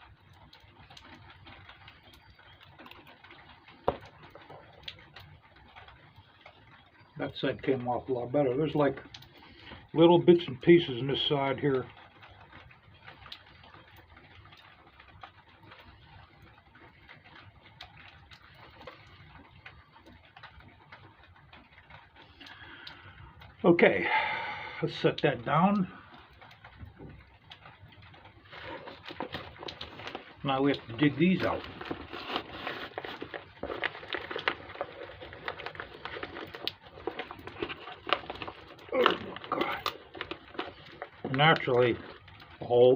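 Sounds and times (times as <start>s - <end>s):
fingers picking plastic film: 28.4s - 42.7s.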